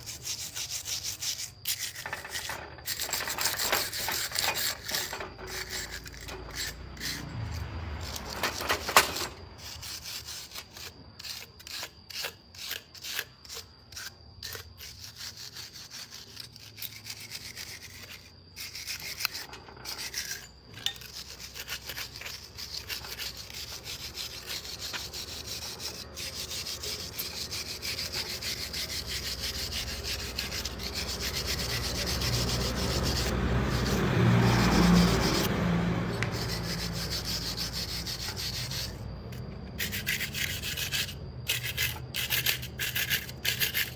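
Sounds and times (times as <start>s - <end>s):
hand sanding strokes: 0.0s - 8.7s, 21.2s - 39.0s.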